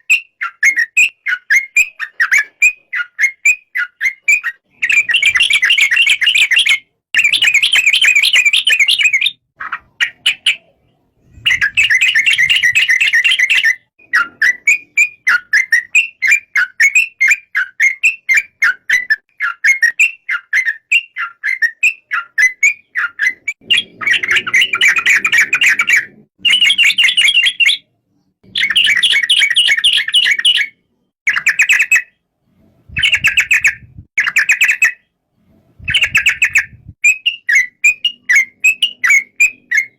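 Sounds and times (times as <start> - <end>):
bird singing bubbly chattering phrases: 4.8 - 17.9, 21.6 - 32.0, 32.9 - 35.0.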